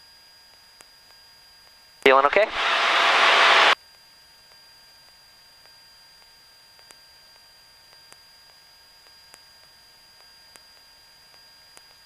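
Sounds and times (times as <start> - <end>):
electrical hiss: 2.1 - 3.8
thin high whine: 2.1 - 3.8.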